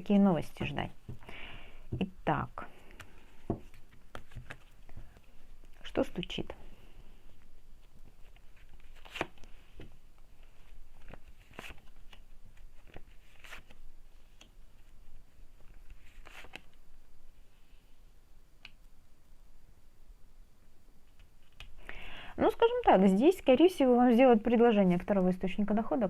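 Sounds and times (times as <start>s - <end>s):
cards being shuffled: 2.9s - 5.8s, 7.8s - 16.8s.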